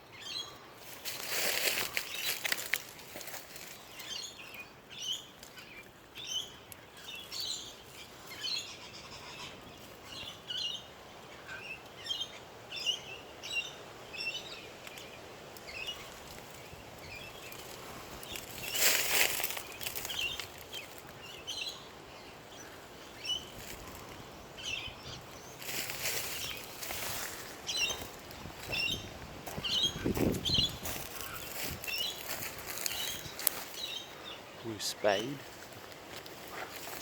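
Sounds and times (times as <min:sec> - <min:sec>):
bird chirping: 0:00.0 - 0:35.5
rustling noise: 0:25.6 - 0:33.9.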